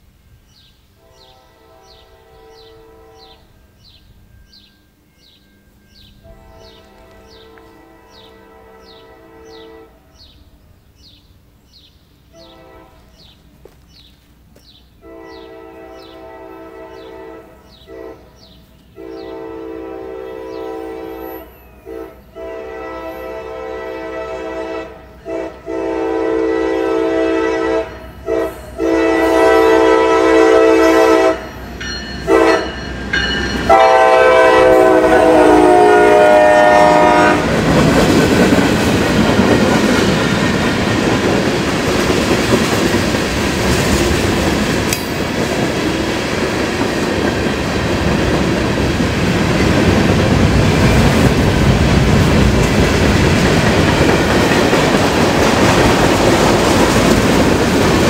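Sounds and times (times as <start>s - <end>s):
locomotive air horn blasts: 1.0s - 3.6s, 6.2s - 10.3s, 12.3s - 13.2s, 15.0s - 31.6s, 32.2s - 32.9s, 33.7s - 37.6s
train wheels clacking over rail joints: 36.8s - 58.0s.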